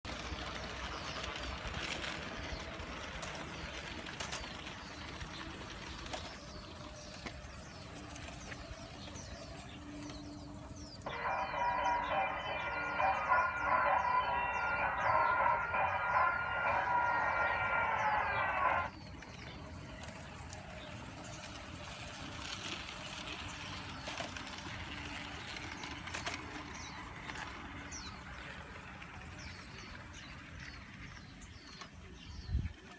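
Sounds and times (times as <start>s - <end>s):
train rushing: 0.1s - 32.9s
small birds chirping: 0.2s - 32.9s.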